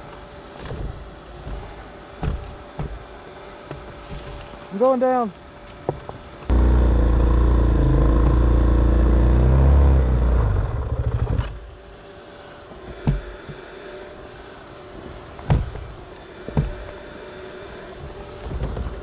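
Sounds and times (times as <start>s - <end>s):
dirt bike engine running: 6.5s - 11.6s.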